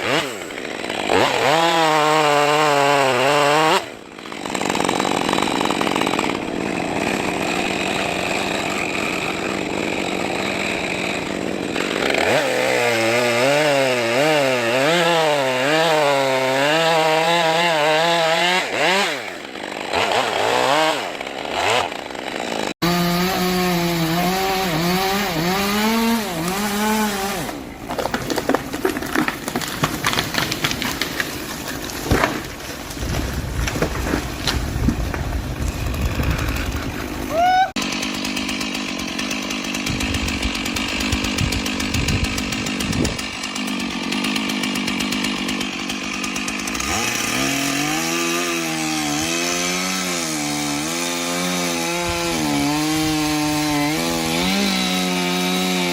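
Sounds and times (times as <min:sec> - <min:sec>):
chainsaws cutting timber: 0:00.0 - 0:55.9
sharp clicks and cracks: 0:27.9 - 0:35.7.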